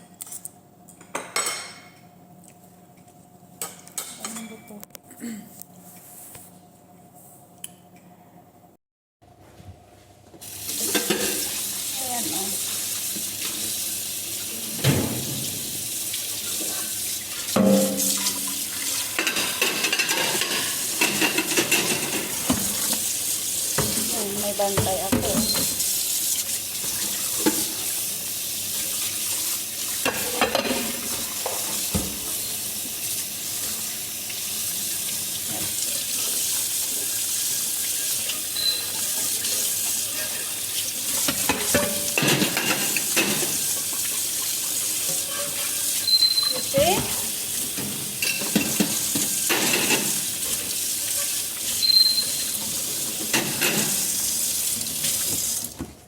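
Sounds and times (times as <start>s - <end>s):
dishes clattering: 1.1s - 2.0s, 10.8s - 11.5s, 17.5s - 23.1s, 30.0s - 32.2s, 41.2s - 43.7s, 47.8s - 50.3s, 53.2s - 54.1s
tap water running into a sink: 10.4s - 56.0s.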